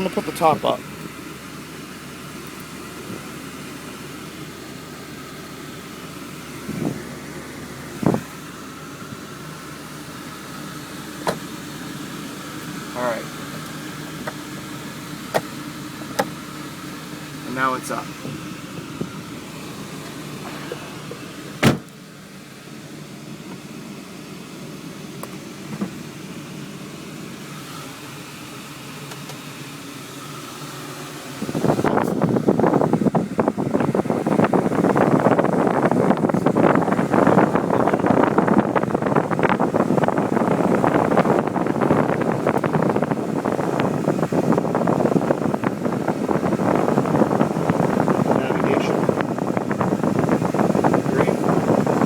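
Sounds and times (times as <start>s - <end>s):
car engine idling: 0.0s - 52.0s
wind buffeting microphone: 6.6s - 8.4s, 31.4s - 52.0s.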